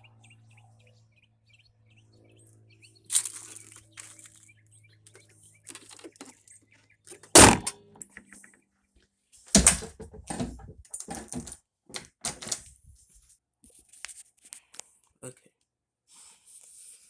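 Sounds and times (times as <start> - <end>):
knocks and rattles: 7.3 - 8.2, 9.6 - 12.6
loud bangs: 7.4 - 7.7, 9.6 - 11.6.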